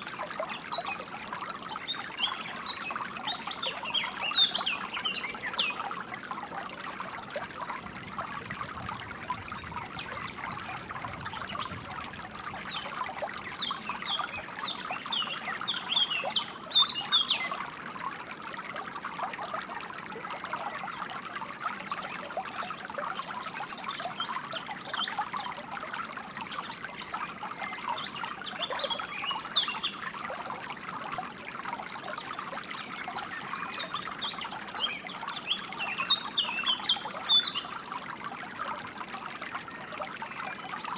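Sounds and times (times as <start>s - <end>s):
songbirds chirping: 0.0s - 6.3s, 8.9s - 17.6s, 21.8s - 30.2s, 31.8s - 37.9s
stream trickling and splashing: 0.0s - 40.9s.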